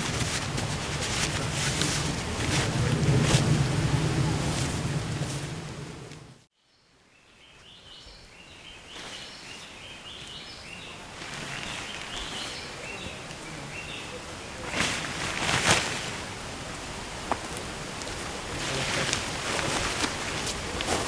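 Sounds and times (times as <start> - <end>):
wind buffeting microphone: 0.0 - 6.4
birds chirping: 1.4 - 16.6.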